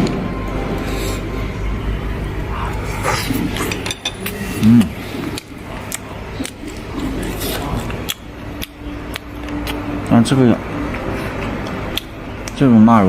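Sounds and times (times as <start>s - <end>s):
chopsticks clinking on bowls: 3.5s - 4.4s.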